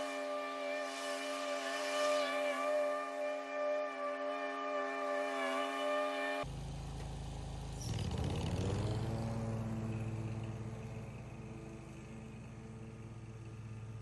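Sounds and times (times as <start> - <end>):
small engine running: 5.4 - 14.0.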